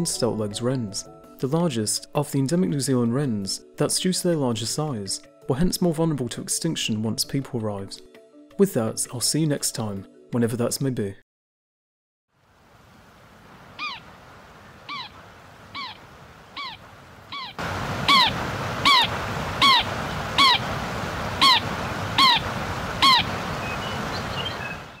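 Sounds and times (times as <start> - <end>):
background hiss: 12.4 - 25.0
bird whistled call: 16.6 - 20.6, 22.2 - 22.4, 23.0 - 25.0.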